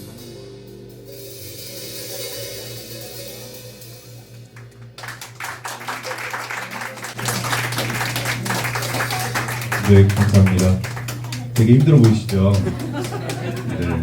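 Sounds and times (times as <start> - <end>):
cymbal wash: 0.0 - 5.3
electric bass: 0.0 - 5.4
jazz band chord: 0.0 - 14.0
audience applause: 4.1 - 14.0.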